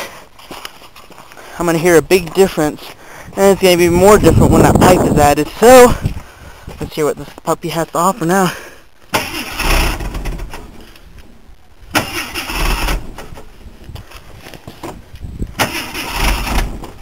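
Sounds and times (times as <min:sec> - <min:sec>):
engine starter cranking: 0:09.1 - 0:10.8, 0:11.9 - 0:13.4, 0:15.6 - 0:17.0.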